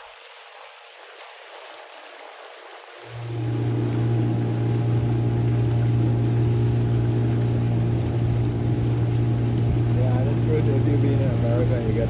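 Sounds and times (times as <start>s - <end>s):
motorboat engine running: 3.0s - 12.0s.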